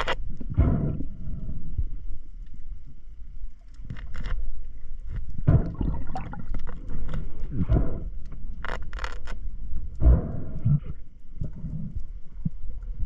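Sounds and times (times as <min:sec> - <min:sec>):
underwater rushes of water: 0:05.0 - 0:08.1
underwater scrapes: 0:05.1 - 0:09.4.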